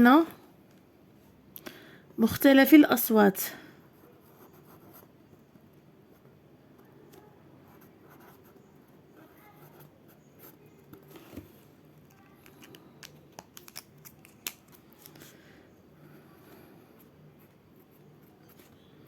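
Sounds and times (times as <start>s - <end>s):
pen scratching while writing: 6.8s - 11.4s.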